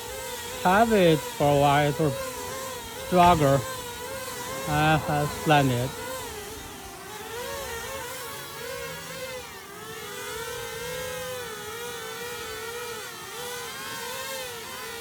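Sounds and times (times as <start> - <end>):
drone propellers whining: 0.0 - 8.1.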